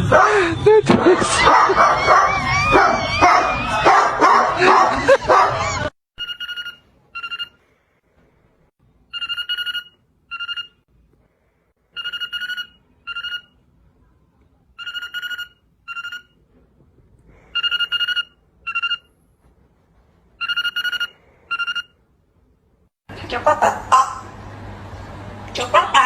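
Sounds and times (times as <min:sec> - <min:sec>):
telephone ringing: 0:06.2 - 0:07.6, 0:09.1 - 0:10.8, 0:12.0 - 0:13.5, 0:17.6 - 0:19.1.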